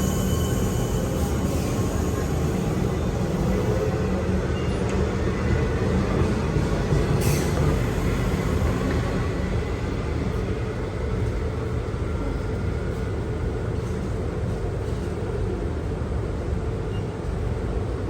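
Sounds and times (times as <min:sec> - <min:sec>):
train rumbling past: 0:00.0 - 0:18.0.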